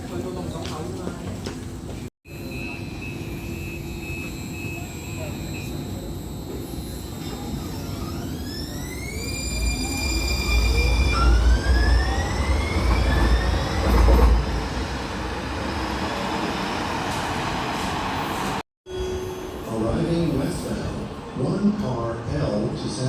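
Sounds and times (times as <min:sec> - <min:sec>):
train traction motors whining: 0:03.3 - 0:16.4
train low rumble: 0:09.4 - 0:23.0.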